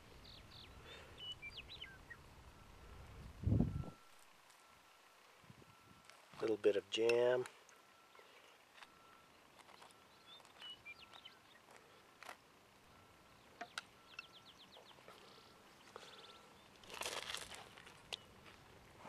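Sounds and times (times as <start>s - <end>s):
faint bird chirps: 0.0s - 4.8s, 7.6s - 12.0s, 12.9s - 16.8s
bird trill: 0.2s - 3.3s, 9.2s - 11.7s, 13.2s - 17.1s
handling rustle: 16.7s - 19.0s.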